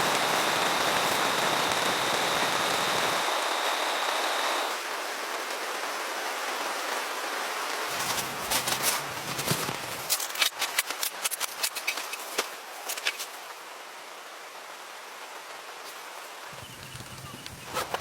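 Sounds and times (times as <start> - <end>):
sharp clicks and cracks: 0.0 - 4.8, 7.9 - 13.3
rain hiss: 0.0 - 11.3.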